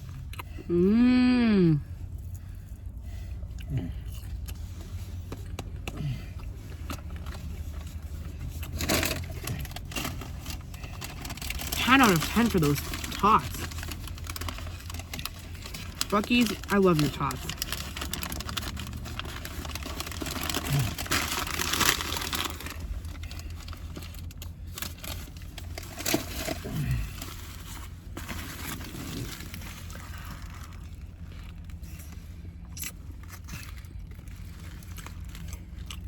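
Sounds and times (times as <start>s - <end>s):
low steady hum: 0.0s - 36.0s
plastic packaging crinkling: 8.7s - 31.8s.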